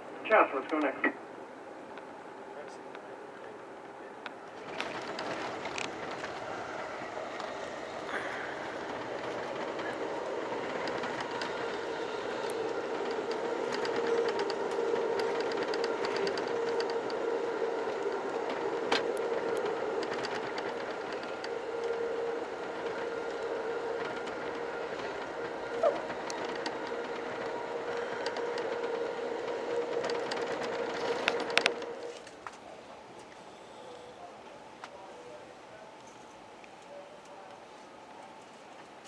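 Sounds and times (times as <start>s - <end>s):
steady hum: 0.0s - 1.3s
train running on track: 0.0s - 39.0s.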